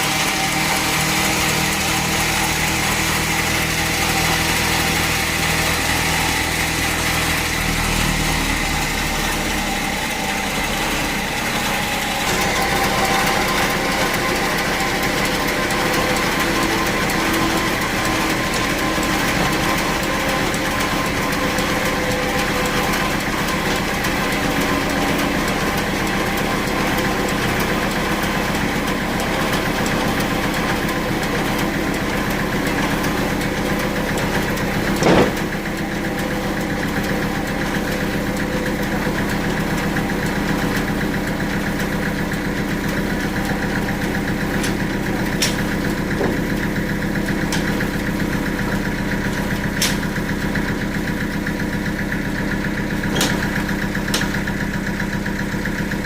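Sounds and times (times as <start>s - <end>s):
band sawmill running: 0.0s - 56.0s
loud knock: 35.0s - 35.5s.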